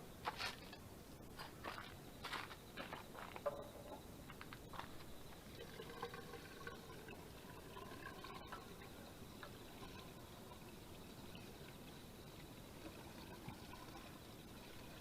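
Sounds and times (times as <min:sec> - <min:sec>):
liquid being poured: 0:05.2 - 0:15.0.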